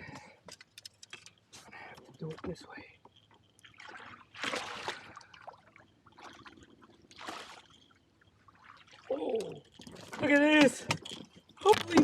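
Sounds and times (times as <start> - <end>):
water splashing: 3.5 - 10.9.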